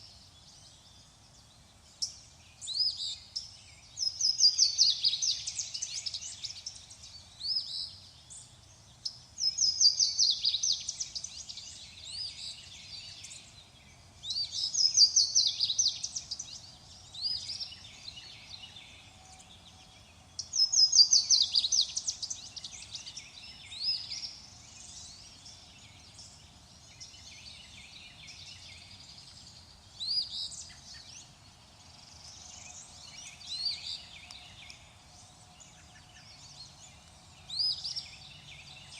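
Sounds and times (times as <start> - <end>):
songbird chirping: 0.0 - 38.9.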